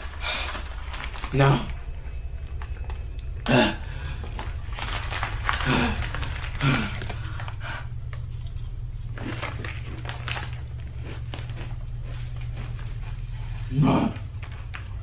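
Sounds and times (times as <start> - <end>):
person breathing hard: 0.0 - 0.7, 3.5 - 4.4, 5.6 - 8.1
steady low hum: 0.0 - 15.0.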